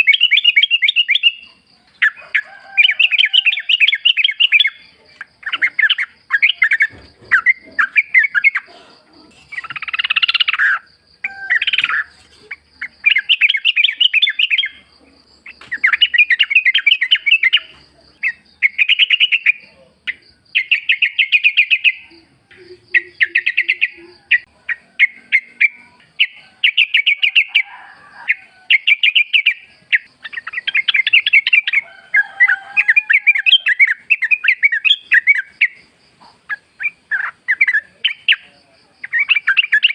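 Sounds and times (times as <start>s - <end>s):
bird singing bubbly chattering notes: 11.6s - 14.8s, 20.6s - 27.1s.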